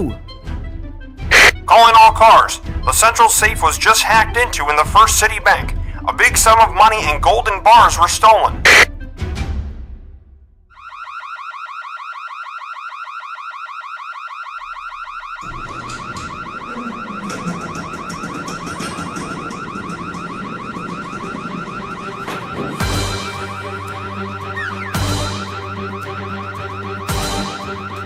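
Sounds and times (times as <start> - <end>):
low rough electronic layer: 1.3 - 1.7, 8.5 - 8.9
electronic alarm warbling tone: 1.3 - 4.9, 6.5 - 8.9, 10.8 - 28.0.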